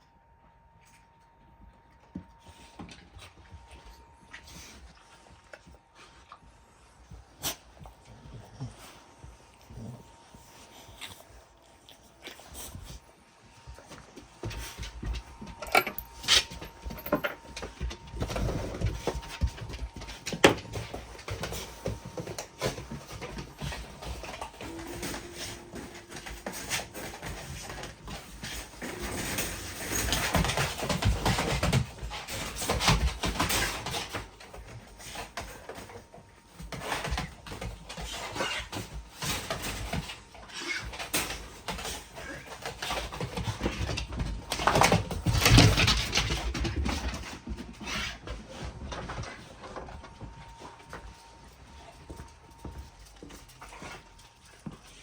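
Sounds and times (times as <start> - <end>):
dogs rustling and knocking: 13.6 - 55.0.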